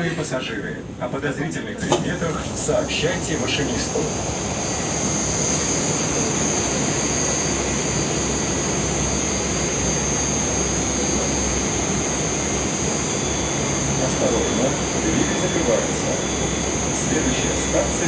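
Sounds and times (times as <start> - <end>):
ventilation hiss and hum: 0.0 - 7.5
high steady whine: 1.8 - 18.0
low hum: 2.1 - 18.0.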